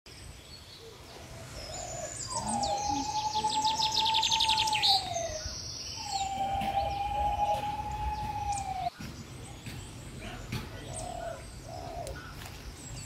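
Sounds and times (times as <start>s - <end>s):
birds chirping: 0.1s - 13.0s
bird rapid trill: 2.3s - 8.9s.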